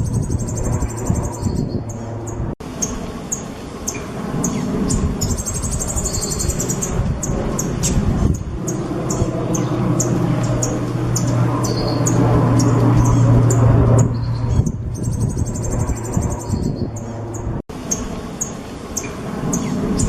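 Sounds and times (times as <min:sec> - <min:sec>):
songbird chirping and trilling: 0:00.0 - 0:20.0
steady low hum: 0:00.0 - 0:20.0.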